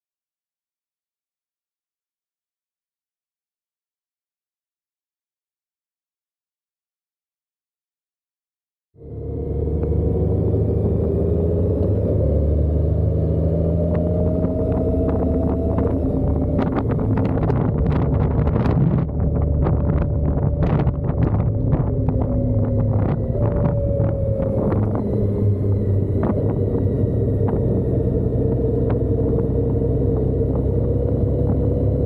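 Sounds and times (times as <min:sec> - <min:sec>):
motorcycle engine running: 0:09.0 - 0:32.0
wind buffeting microphone: 0:09.5 - 0:32.0.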